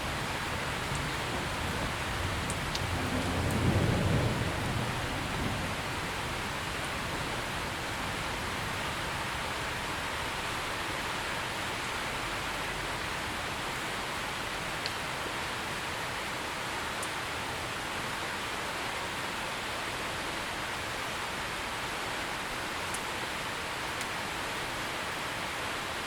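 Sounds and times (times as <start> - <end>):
thunder rumble: 0.0 - 9.1
steady rain: 0.0 - 26.0.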